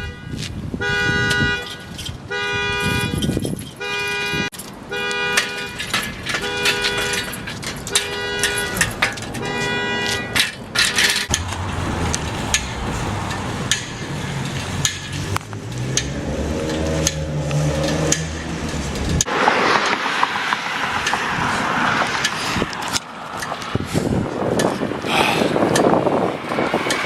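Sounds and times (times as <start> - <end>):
car engine running: 11.3 - 19.3.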